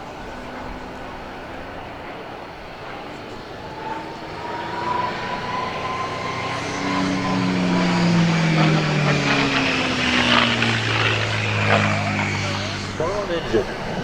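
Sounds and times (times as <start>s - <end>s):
propeller plane flying by: 0.0s - 14.0s.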